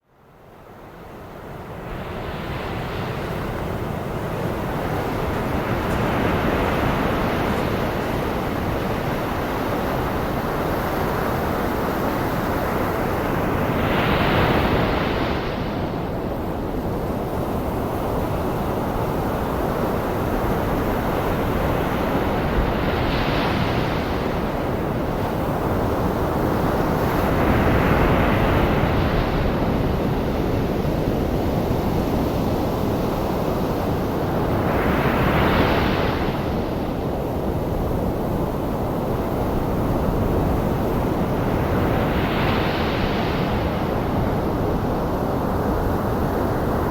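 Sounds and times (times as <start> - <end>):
ocean waves breaking: 2.3 - 11.4.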